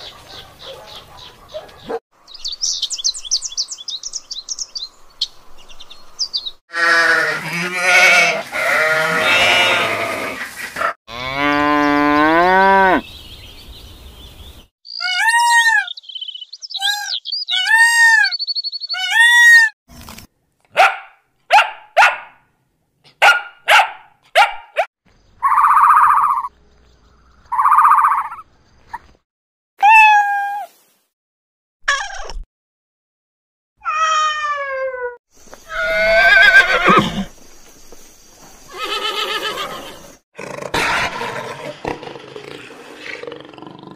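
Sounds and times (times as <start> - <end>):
harsh animal calls: 6.7 - 13.0
high squeals or yelps: 14.9 - 16.0, 16.7 - 19.8, 25.4 - 26.5, 33.8 - 37.1.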